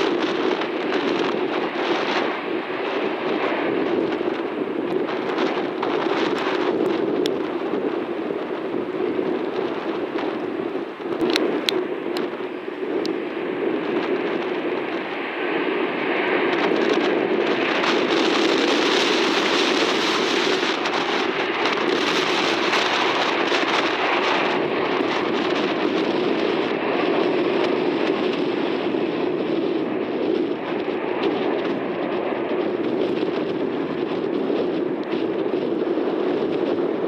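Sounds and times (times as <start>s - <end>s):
heavy rain: 0.0s - 15.9s, 16.5s - 27.3s
jet airliner engine: 0.0s - 37.0s
wind on microphone: 0.0s - 37.0s.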